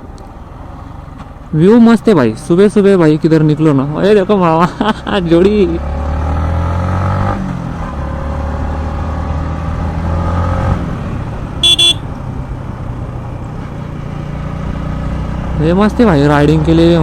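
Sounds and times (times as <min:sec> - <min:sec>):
motorcycle engine running: 0:10.8 - 0:15.7
short horn beep: 0:11.6 - 0:12.1.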